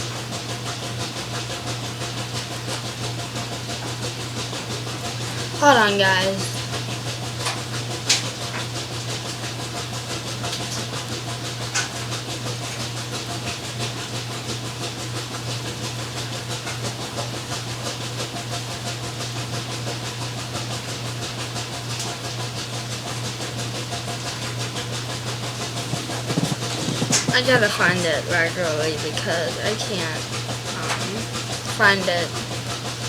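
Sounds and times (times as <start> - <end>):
laundry machine humming: 0.0 - 33.0.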